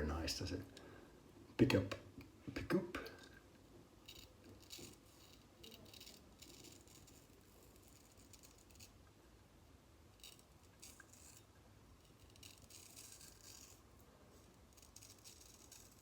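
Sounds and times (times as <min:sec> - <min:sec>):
razor scraping stubble: 0:04.0 - 0:09.0, 0:10.2 - 0:13.8, 0:14.4 - 0:16.0.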